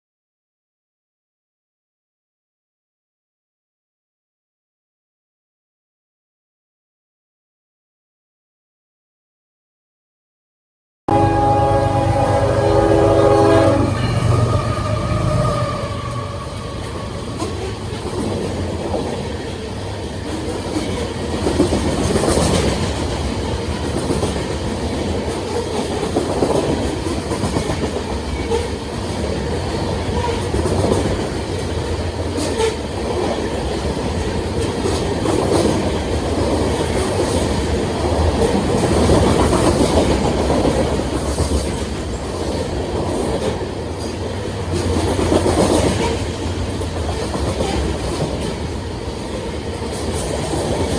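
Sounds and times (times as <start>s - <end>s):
train wheels rumbling on rail: 11.1s - 50.9s.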